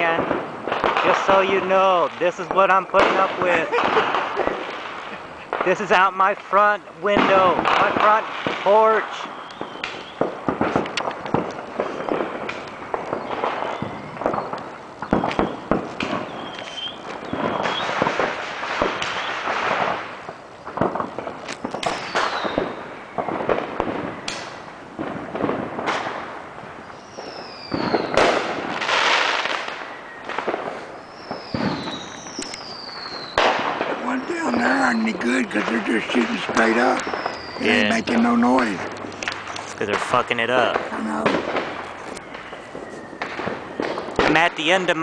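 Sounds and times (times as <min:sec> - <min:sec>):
whistling rockets: 0:00.0 - 0:05.9, 0:07.1 - 0:45.0
firecracker pops and bangs: 0:00.0 - 0:45.0
fireworks crackling: 0:00.0 - 0:45.0.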